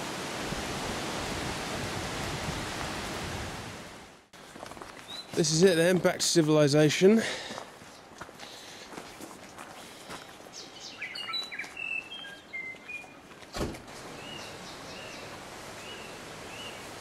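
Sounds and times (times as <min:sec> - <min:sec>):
small birds chirping: 0:05.0 - 0:05.5, 0:09.8 - 0:13.2, 0:14.2 - 0:16.9.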